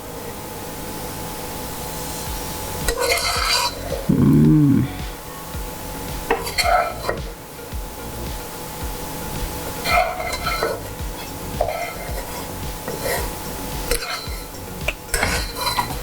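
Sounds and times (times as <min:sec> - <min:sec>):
spoon scraping and clinking on pan: 0:06.3 - 0:07.2, 0:09.8 - 0:16.0.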